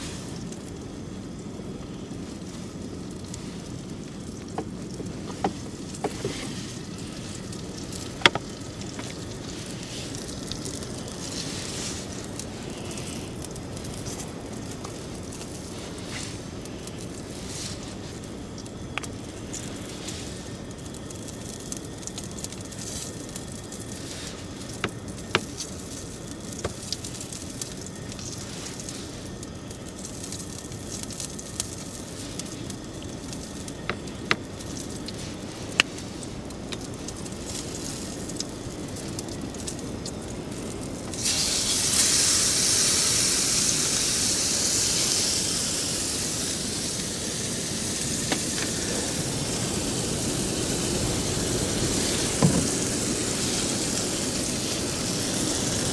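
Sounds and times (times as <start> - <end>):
loud high sizzle: 0.0 - 55.9
steak popping in a pan: 1.8 - 17.1, 18.2 - 43.7.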